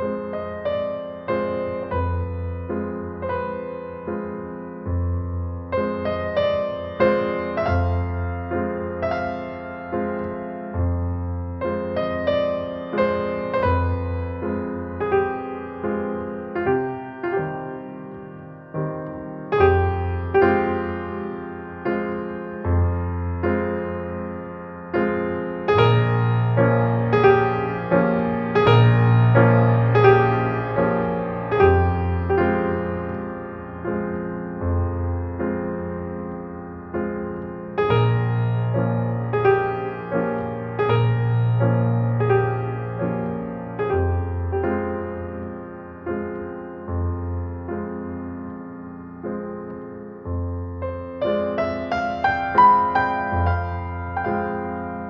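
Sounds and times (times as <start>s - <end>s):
gentle keyboard music: 0.0s - 55.0s.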